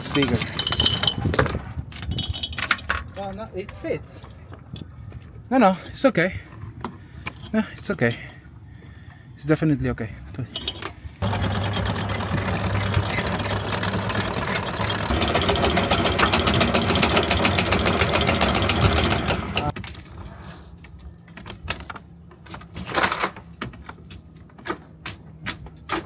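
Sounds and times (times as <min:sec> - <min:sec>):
chain links rattling: 0:00.0 - 0:03.4, 0:10.5 - 0:19.7
windlass motor hum: 0:11.0 - 0:19.7.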